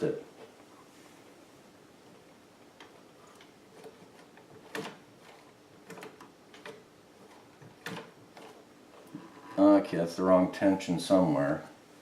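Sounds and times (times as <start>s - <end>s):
sewing machine clicks and knocks: 2.8s - 9.4s.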